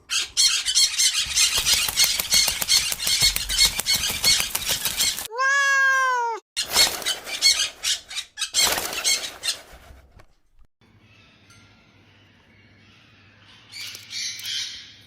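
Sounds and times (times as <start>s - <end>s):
bird wings flapping: 1.2s - 5.3s, 6.6s - 10.6s.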